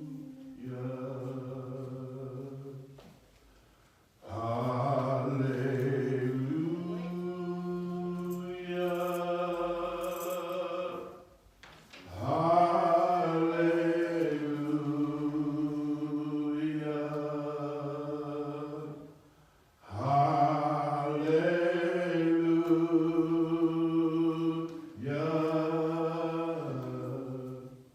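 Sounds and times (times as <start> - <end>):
man singing wordless notes: 0.0 - 3.1, 4.2 - 11.4, 12.0 - 19.1, 19.8 - 27.8
breath: 3.3 - 4.2, 19.2 - 19.8.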